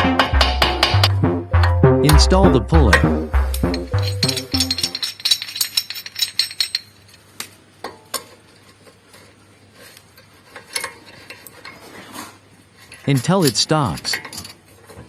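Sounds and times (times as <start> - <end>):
metal tools clinking: 2.9 - 9.3, 12.8 - 15.0.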